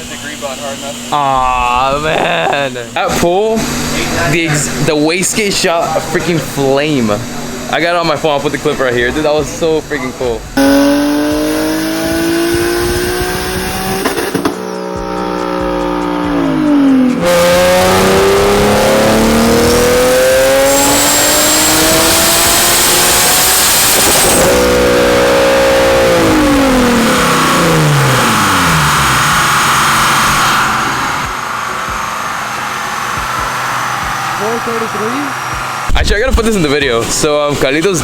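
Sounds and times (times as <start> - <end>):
car engine revving: 10.4 - 38.0.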